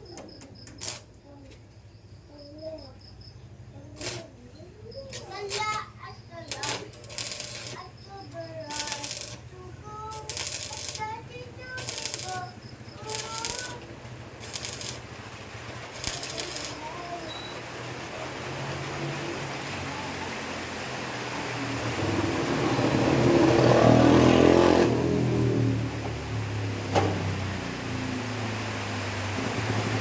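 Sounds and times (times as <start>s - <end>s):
motor vehicle passing by: 6.0s - 30.0s
sharp clinks: 10.1s - 13.8s
birds chirping: 11.1s - 14.4s.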